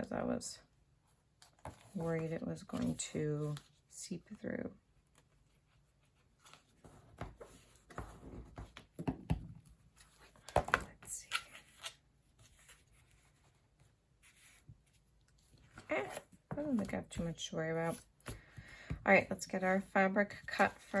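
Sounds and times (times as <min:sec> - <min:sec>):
rustling and tapping of craft materials: 0:06.4 - 0:11.0, 0:15.4 - 0:19.4.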